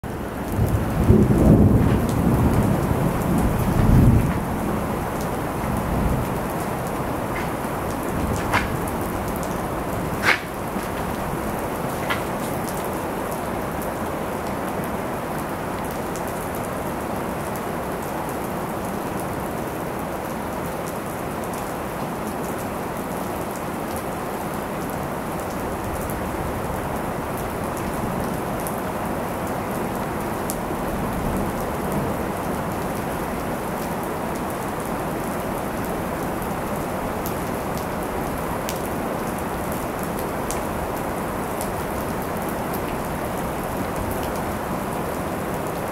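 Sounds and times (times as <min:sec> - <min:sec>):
heavy rain falling: 0:00.0 - 0:45.9
raindrops clicking: 0:03.6 - 0:13.1.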